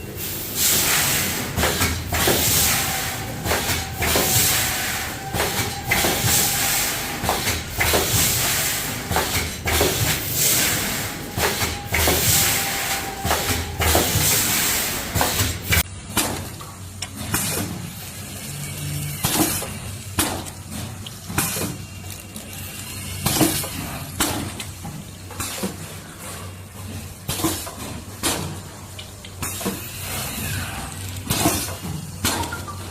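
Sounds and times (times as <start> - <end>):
machine hiss: 0.0 - 15.8
packing machinery clattering: 1.0 - 17.8.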